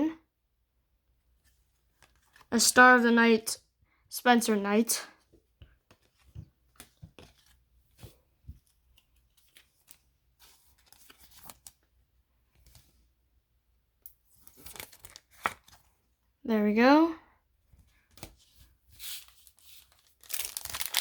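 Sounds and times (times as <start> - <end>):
trading cards clicking and rustling: 20.2 - 21.0.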